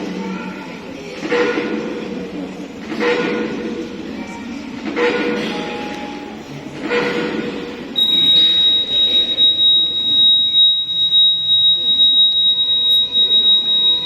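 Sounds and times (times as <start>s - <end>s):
background noise: 0.0s - 14.0s
high-pitched tone: 8.0s - 14.0s.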